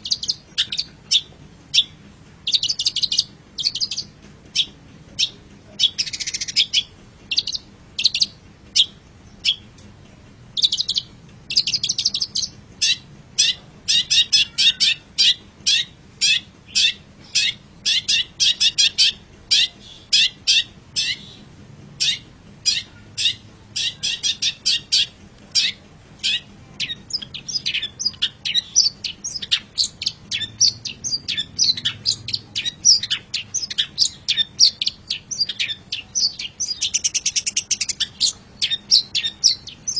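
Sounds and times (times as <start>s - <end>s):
bird chips and chatter: 0.0s - 9.8s, 10.5s - 21.4s, 22.0s - 39.9s.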